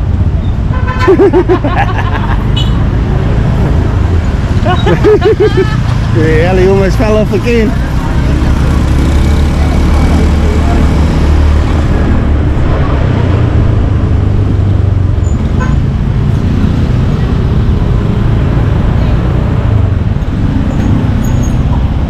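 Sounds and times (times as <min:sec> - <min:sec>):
motorcycle engine: 0:00.0 - 0:22.0
road noise: 0:00.0 - 0:22.0.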